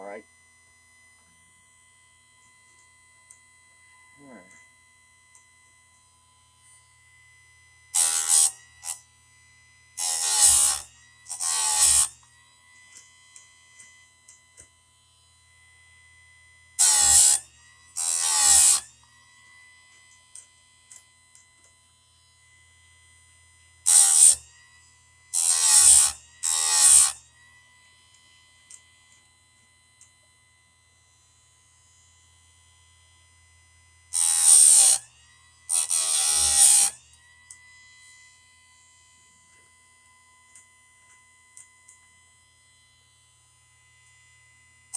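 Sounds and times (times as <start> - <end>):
chain sharpener motor hum: 6.0 - 44.9
grinding wheel on chain: 8.0 - 8.5, 10.0 - 10.8, 11.4 - 12.1, 16.8 - 17.4, 18.0 - 18.8, 23.9 - 24.4, 25.4 - 27.1, 34.2 - 35.0, 35.7 - 37.0.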